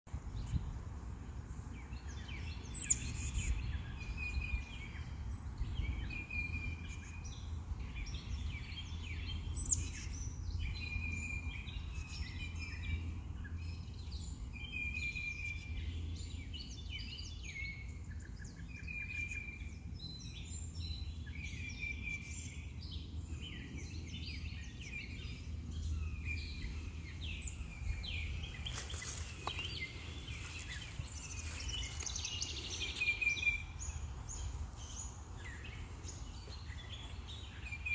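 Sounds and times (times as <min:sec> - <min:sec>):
birds chirping and calling: 0:20.9 - 0:37.9.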